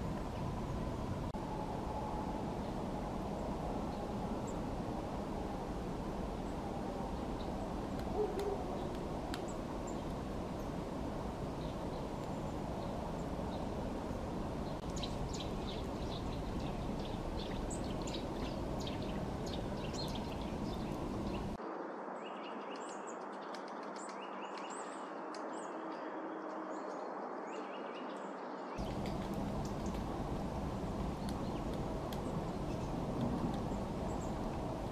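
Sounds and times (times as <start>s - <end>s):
low outdoor background noise: 0.0s - 34.9s
birds chirping: 6.3s - 21.6s, 28.8s - 34.9s.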